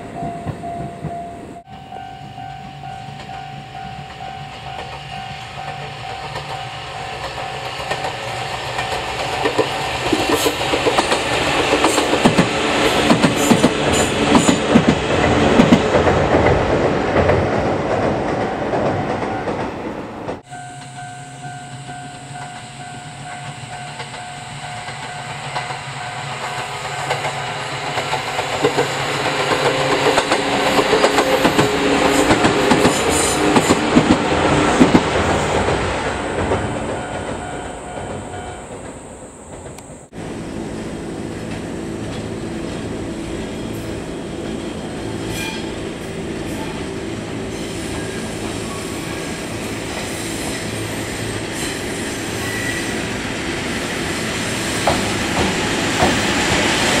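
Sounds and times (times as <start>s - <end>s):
train wheels clacking over rail joints: 3.9s - 19.7s, 21.8s - 39.8s, 54.8s - 57.0s.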